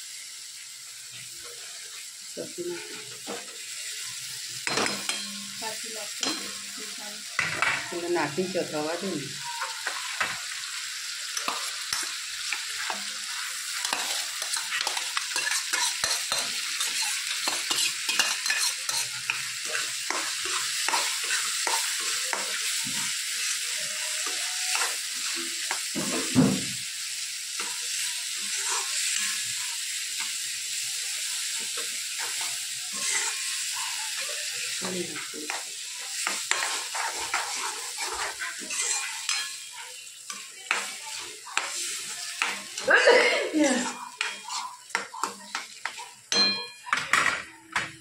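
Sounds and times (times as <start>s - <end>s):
food sizzling in a pan: 0.0s - 48.0s
spoon scraping metal pan: 11.3s - 23.0s, 31.6s - 34.5s, 35.1s - 42.9s, 43.6s - 46.0s.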